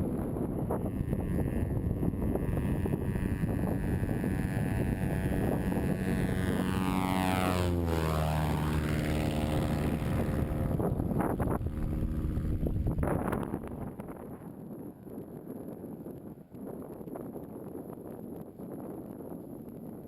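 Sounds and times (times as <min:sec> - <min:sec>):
seaplane propeller engine fly-by: 0:00.0 - 0:15.4.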